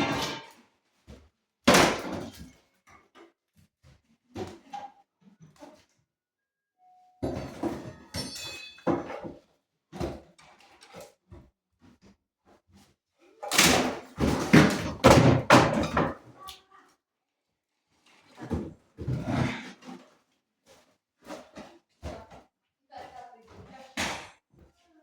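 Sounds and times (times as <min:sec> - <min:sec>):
demolition thuds and knocks: 0:13.7 - 0:16.2.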